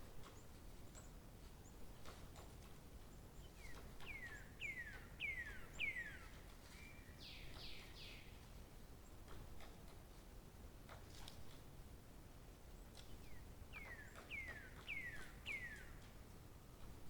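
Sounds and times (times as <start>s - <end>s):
songbird singing: 3.3s - 8.4s, 12.8s - 17.0s.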